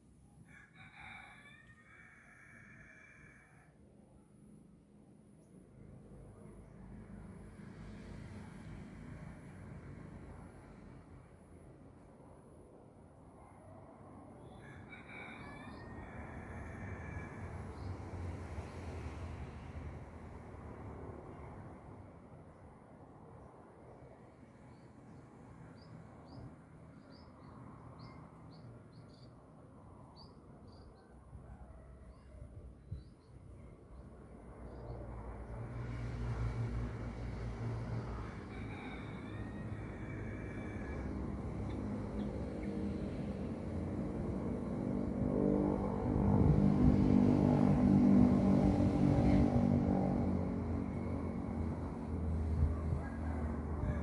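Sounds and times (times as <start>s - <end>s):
vehicle engine passing: 35.1s - 40.4s, 41.0s - 54.0s.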